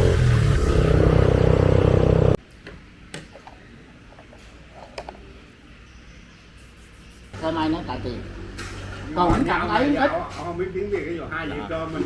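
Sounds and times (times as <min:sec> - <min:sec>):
motorbike engine running: 0:00.0 - 0:02.4.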